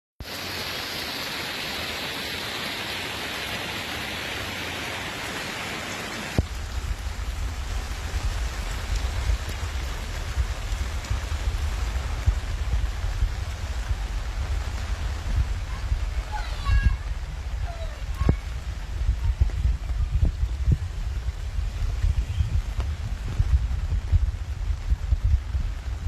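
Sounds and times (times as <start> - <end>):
heavy rain hissing: 0.2 - 26.0
deep rumbling noise: 6.4 - 26.0.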